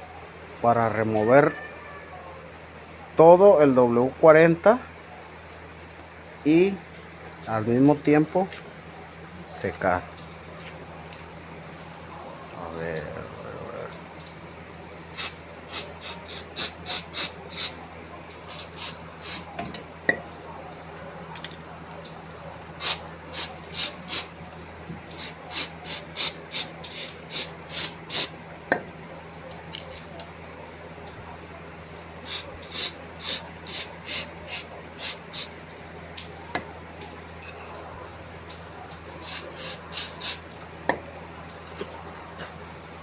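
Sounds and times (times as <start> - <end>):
aerosol spray hissing: 15.2 - 17.8, 18.5 - 19.5, 22.8 - 24.3, 25.2 - 28.3, 32.3 - 35.5, 39.2 - 40.4.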